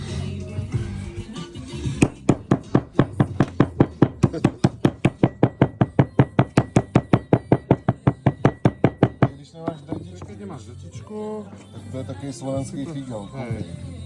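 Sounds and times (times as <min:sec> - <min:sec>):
knife chopping on cutting board: 0:02.0 - 0:10.4.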